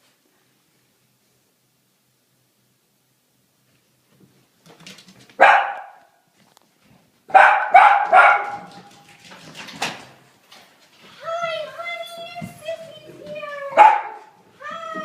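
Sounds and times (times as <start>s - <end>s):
dog barking: 5.4s - 6.2s, 7.3s - 8.9s, 13.7s - 14.4s.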